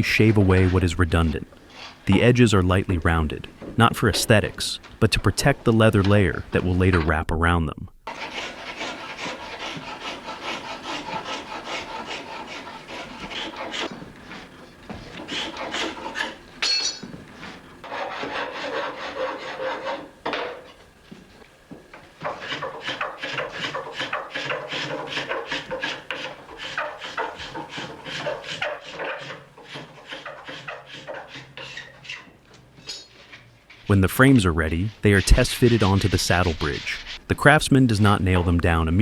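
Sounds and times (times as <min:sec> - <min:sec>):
hand tool scraping wood: 0:00.0 - 0:07.2, 0:08.1 - 0:21.3, 0:21.9 - 0:38.8.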